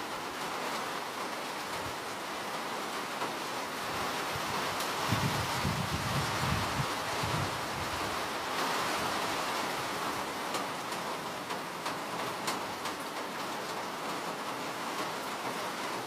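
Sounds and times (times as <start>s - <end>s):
steady rain hiss: 0.0s - 16.0s
raindrops ticking: 10.3s - 15.3s.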